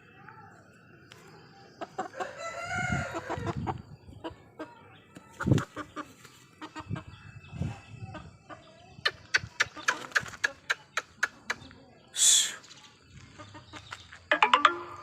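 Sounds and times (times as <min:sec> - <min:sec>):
chicken clucking: 0:01.7 - 0:07.2, 0:08.1 - 0:11.9
rooster crowing: 0:02.2 - 0:03.5.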